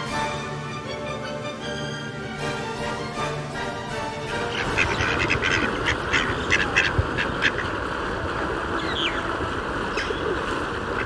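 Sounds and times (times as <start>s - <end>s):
ducks quacking: 4.2s - 11.0s
high bird chirps: 8.8s - 9.3s.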